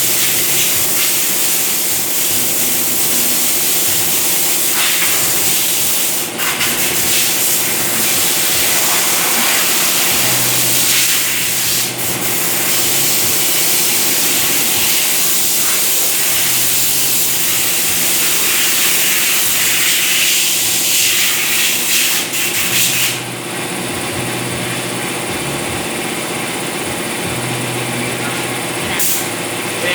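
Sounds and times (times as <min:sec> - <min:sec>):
water spray hissing: 0:00.1 - 0:23.1.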